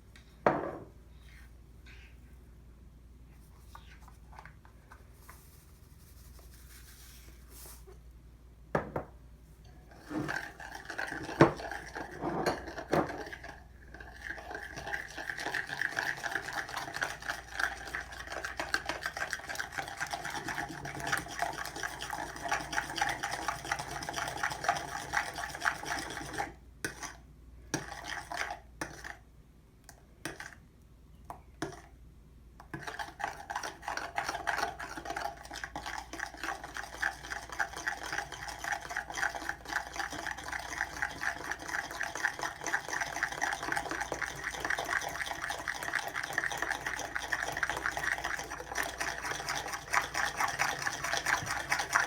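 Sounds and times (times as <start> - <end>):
utensil mixing batter in bowl: 9.9 - 30.6, 31.3 - 32.0, 32.6 - 52.0.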